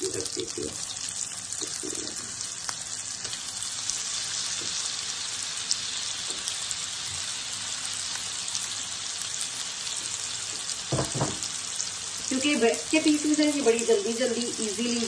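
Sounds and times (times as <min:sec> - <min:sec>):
meat sizzling in a pan: 0:00.0 - 0:15.0.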